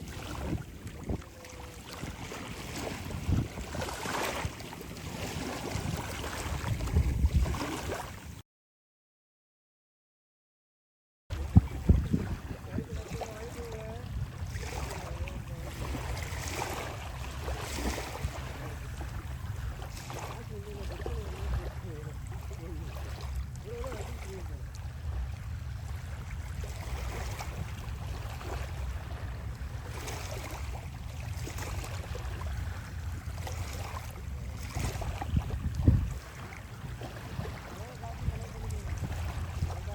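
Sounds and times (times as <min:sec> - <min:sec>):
sea waves washing on shore: 0:00.0 - 0:08.4, 0:11.3 - 0:39.9.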